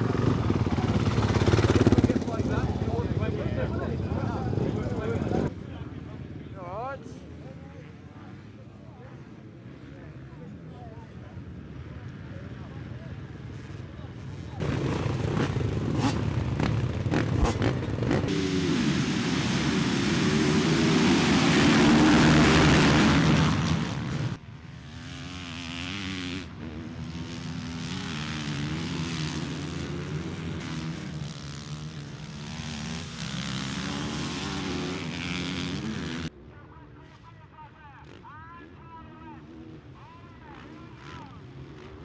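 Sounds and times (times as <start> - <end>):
motocross bikes revving: 0.0 - 5.5, 14.6 - 36.3, 39.4 - 42.0.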